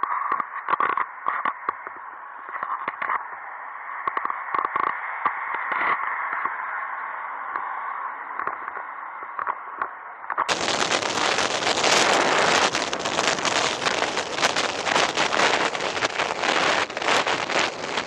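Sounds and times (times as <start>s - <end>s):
wind buffeting microphone: 10.5s - 18.0s.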